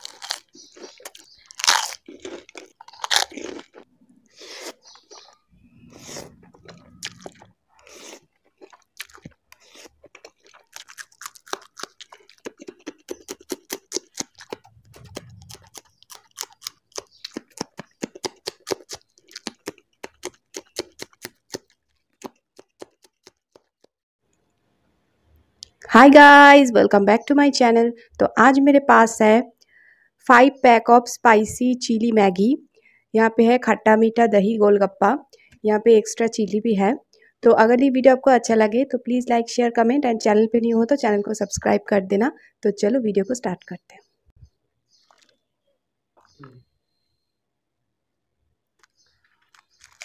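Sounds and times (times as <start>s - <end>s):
crisp shells crunching: 0.0s - 3.8s, 7.1s - 23.4s, 48.8s - 50.0s
crunchy chewing of chillies: 0.0s - 23.8s, 44.9s - 45.6s, 48.6s - 50.0s.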